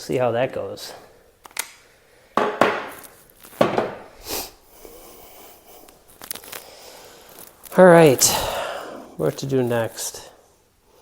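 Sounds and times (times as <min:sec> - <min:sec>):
hard objects knocking and clattering: 0:02.4 - 0:04.1.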